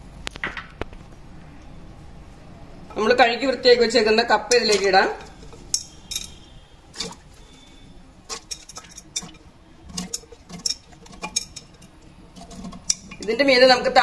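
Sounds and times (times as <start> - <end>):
pieces knocking against metal pot: 4.5 - 7.3, 8.3 - 13.4.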